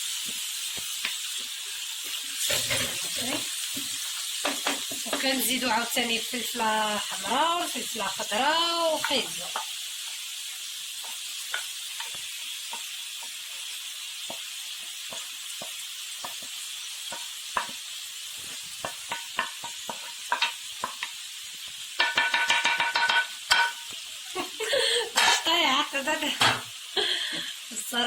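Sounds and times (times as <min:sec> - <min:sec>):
food sizzling in a frying pan: 0:00.0 - 0:28.0
utensil scraping a pan: 0:02.4 - 0:03.5, 0:25.2 - 0:25.6.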